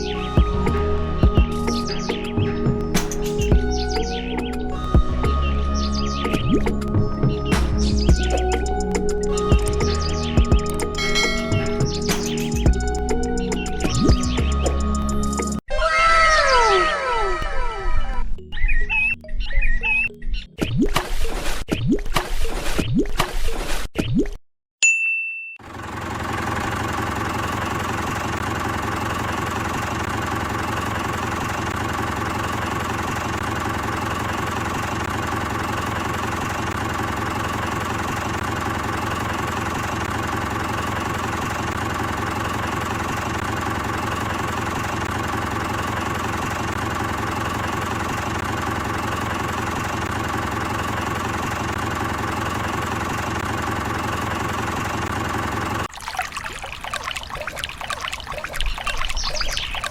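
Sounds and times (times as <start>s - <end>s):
miniature engine running: 25.6s - 55.9s.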